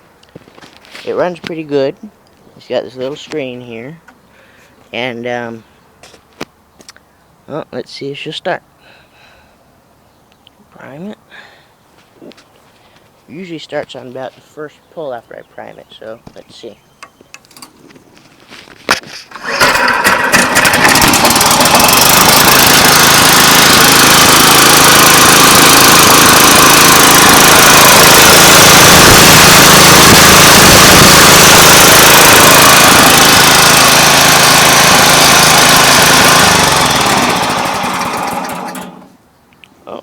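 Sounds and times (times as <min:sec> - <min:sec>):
pull starter cord: 0:18.9 - 0:39.2
string trimmer engine running: 0:19.2 - 0:39.2.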